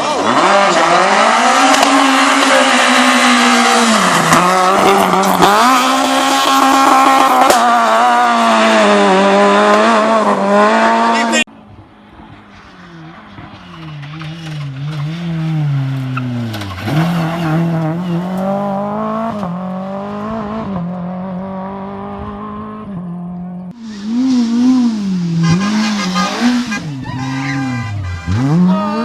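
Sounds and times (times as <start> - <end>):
rally car engine revving: 0.0 - 29.0
tyre noise hiss: 23.8 - 27.4.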